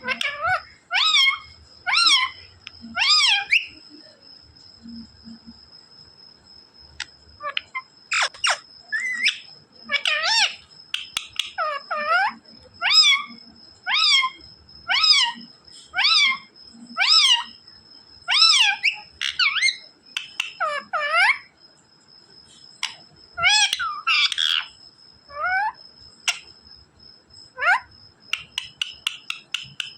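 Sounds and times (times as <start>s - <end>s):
parrot squawking: 0.0s - 2.4s, 3.0s - 3.7s, 7.4s - 17.5s, 18.3s - 21.5s, 22.8s - 26.4s, 27.6s - 29.9s
parrot calling: 0.0s - 3.8s, 7.4s - 17.6s, 18.3s - 21.5s, 22.8s - 26.4s, 27.6s - 29.9s.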